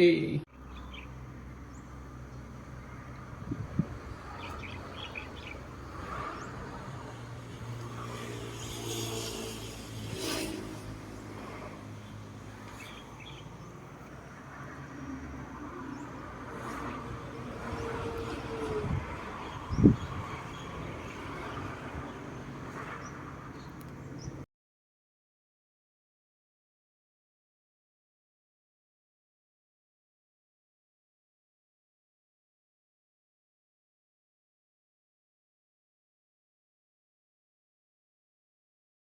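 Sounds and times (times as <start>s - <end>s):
vehicle engine humming: 0.5s - 24.4s
bird chirps: 0.6s - 1.1s.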